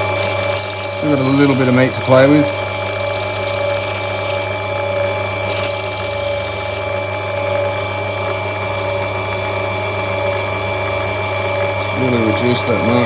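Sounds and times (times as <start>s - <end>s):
stone grinding on wheel: 0.0s - 4.5s, 5.5s - 6.8s.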